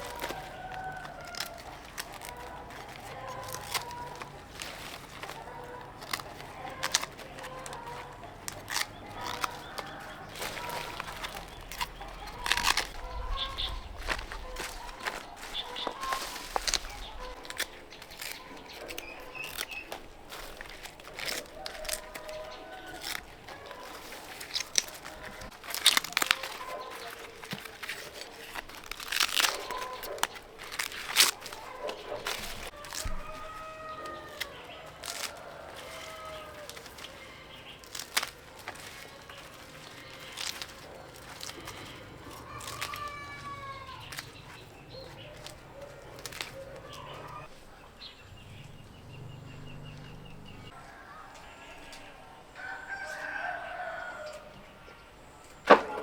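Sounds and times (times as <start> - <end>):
rooster crowing: 0.0 - 16.6, 31.6 - 37.4, 40.9 - 44.2, 50.6 - 54.7
leaves and stems tearing: 0.0 - 47.8.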